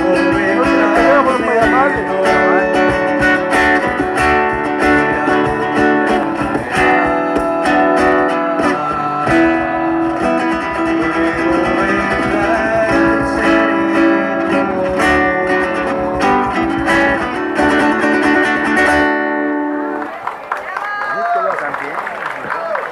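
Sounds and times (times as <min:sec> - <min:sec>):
guitar strumming chords: 0:00.0 - 0:20.0.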